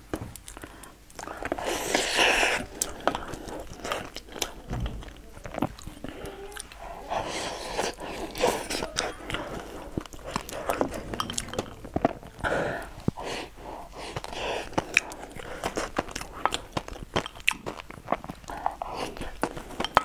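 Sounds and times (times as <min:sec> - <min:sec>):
person chewing food: 0:00.0 - 0:20.0
mouth clicks and smacks: 0:00.1 - 0:20.0.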